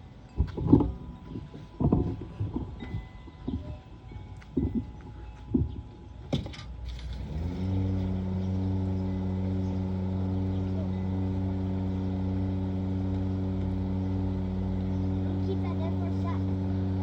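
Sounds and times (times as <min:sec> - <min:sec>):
motor spinning up and humming: 0:06.8 - 0:17.0.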